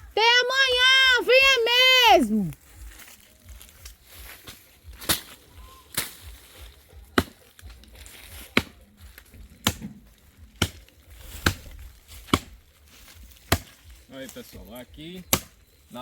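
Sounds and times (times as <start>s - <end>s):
axe chopping tree trunk: 5.0s - 6.2s, 7.2s - 7.4s, 8.5s - 8.8s, 9.5s - 12.6s, 13.4s - 13.8s, 15.2s - 15.6s.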